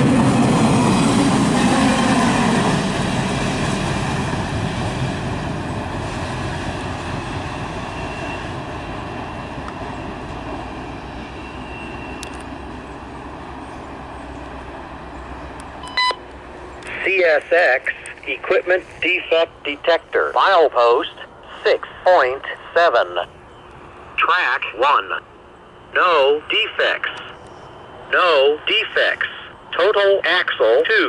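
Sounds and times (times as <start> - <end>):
freight train rumbling past: 0.0 - 17.8, 18.4 - 30.5
scanner radio tone burst: 15.8 - 16.2.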